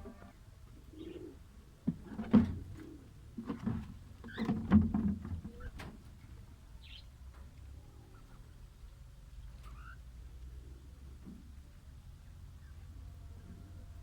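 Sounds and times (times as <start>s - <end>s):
small birds chirping: 6.8s - 7.1s.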